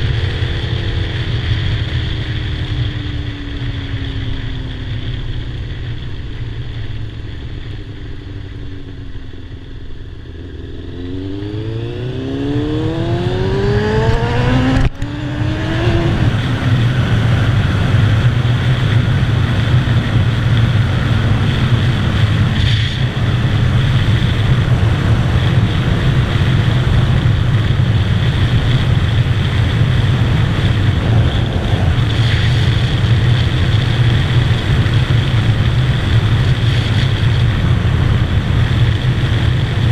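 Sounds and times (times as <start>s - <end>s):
motorcycle engine accelerating: 0.0s - 39.9s
wind rushing: 11.0s - 18.4s, 29.0s - 35.0s.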